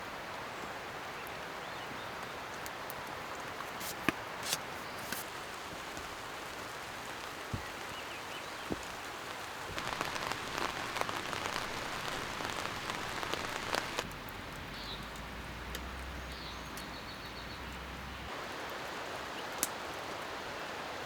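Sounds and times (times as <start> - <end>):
rain falling: 0.0 - 21.0
raindrops ticking: 5.2 - 17.0.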